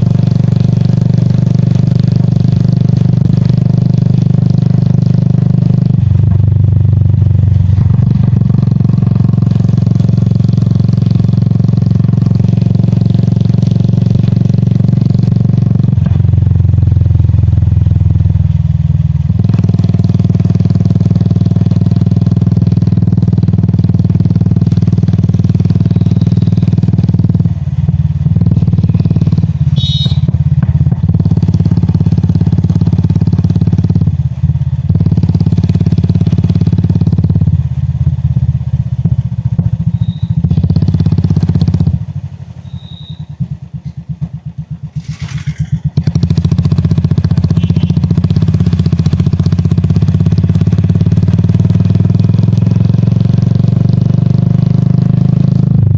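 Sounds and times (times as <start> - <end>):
motorcycle engine running: 0.0 - 55.9
short high beeps: 25.9 - 26.7, 29.8 - 30.3.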